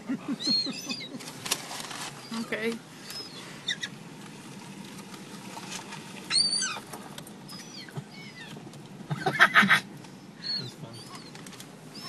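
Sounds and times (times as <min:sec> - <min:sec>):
gulls calling: 0:00.0 - 0:01.5, 0:02.1 - 0:04.1, 0:06.2 - 0:12.0
steady background noise: 0:00.0 - 0:12.0.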